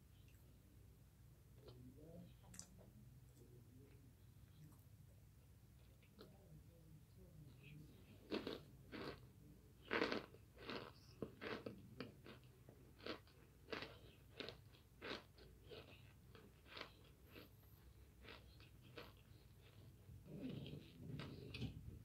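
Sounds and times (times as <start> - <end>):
person chewing crunchy food: 8.2 - 21.9.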